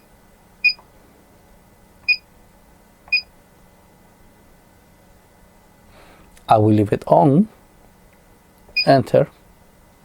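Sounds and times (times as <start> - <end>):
high key-press beeps: 0.6 - 0.8, 3.1 - 3.3, 8.7 - 9.0.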